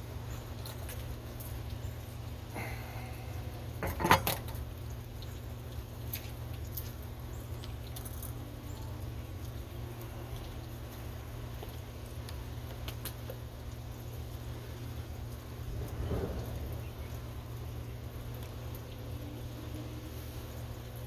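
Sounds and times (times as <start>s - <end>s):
small parts clinking and rattling: 3.8s - 4.6s.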